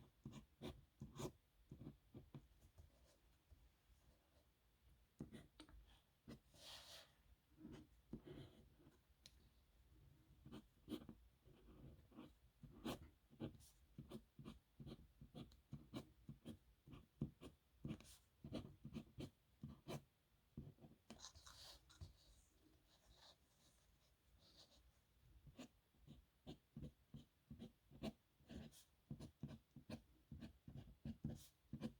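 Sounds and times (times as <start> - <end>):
nib pen scratching on paper: 10.4 - 20.0, 26.4 - 31.9.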